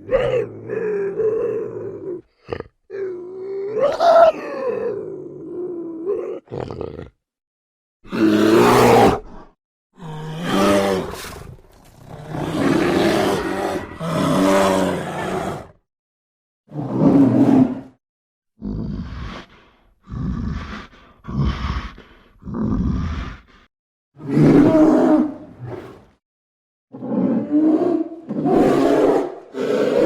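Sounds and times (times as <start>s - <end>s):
wild animal roaring calls: 0.0s - 7.2s.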